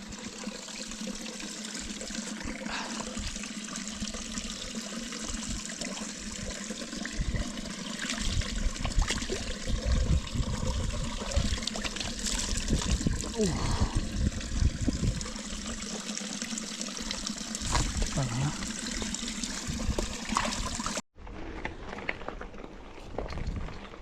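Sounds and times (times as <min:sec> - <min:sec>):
stream water trickling: 0:00.0 - 0:21.0
wind gusts on microphone: 0:08.3 - 0:11.6, 0:12.4 - 0:15.3.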